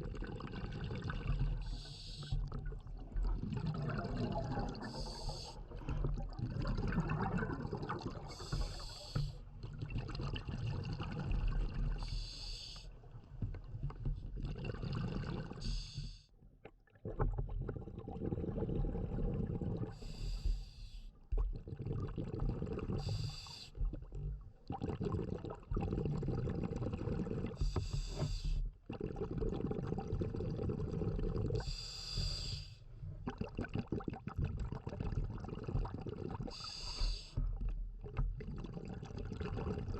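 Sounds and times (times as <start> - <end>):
exhaled air bubbling: 0.0 - 39.9
regulator hissing inhale: 1.6 - 2.4, 4.9 - 5.6, 8.3 - 9.4, 12.0 - 12.9, 15.6 - 16.2, 20.0 - 21.1, 23.0 - 23.8, 27.6 - 28.6, 31.6 - 32.9, 36.5 - 37.4.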